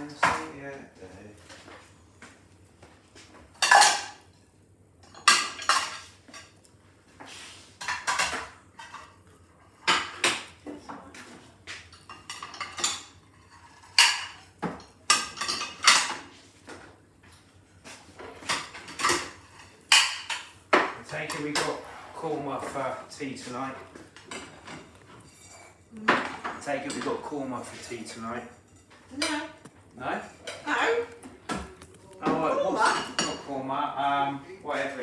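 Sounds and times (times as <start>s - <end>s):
dishes and cutlery clinking: 3.2s - 4.4s, 5.0s - 6.6s, 7.8s - 21.8s, 22.6s - 30.8s, 31.5s - 33.6s.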